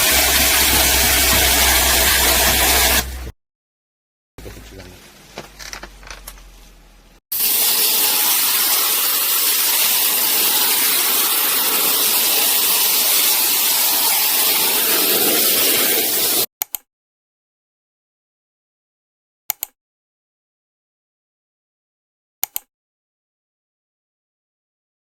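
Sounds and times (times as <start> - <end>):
high-pressure spray hissing: 0.0 - 3.3, 7.3 - 16.5.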